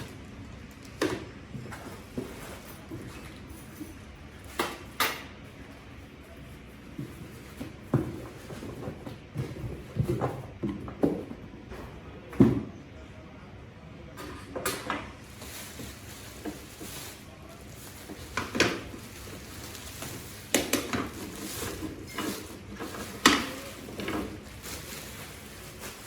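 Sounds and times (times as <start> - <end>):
hard objects knocking and clattering: 17.7 - 26.0.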